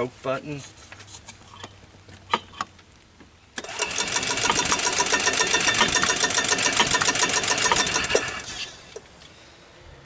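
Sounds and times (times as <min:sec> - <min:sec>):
engine cranking by starter: 0:03.6 - 0:09.3.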